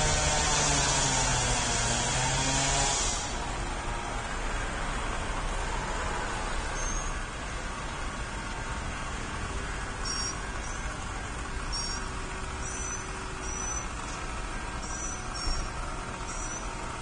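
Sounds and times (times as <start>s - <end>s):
short high chirps: 10.0s - 10.4s, 11.7s - 13.9s.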